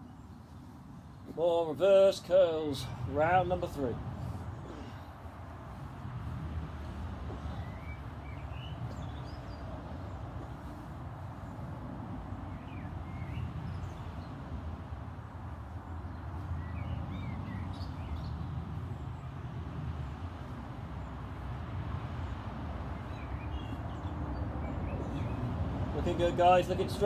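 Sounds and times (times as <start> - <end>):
low outdoor rumble: 0.0 - 27.0
small bird chirping: 7.3 - 10.8.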